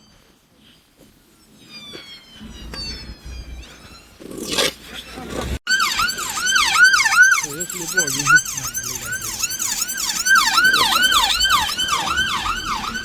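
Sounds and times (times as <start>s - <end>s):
ambulance siren yelping: 5.7s - 13.0s.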